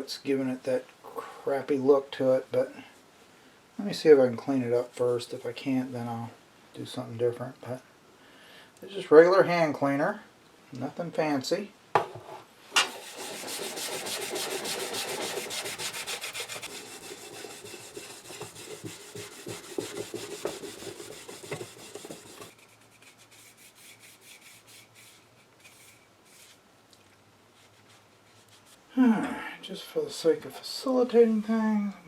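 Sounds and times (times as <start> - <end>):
knock: 12.0 - 13.0
scrubbing wooden cabinet: 12.8 - 26.6.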